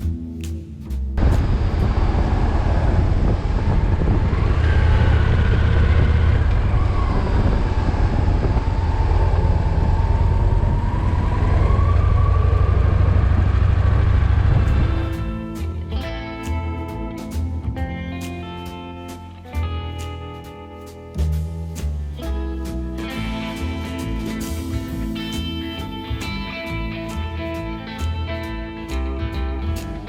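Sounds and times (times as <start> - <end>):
wind and road noise: 1.0 - 30.0
faint drifting tone: 1.2 - 15.5
motorcycle engine deep rumble: 1.2 - 18.1.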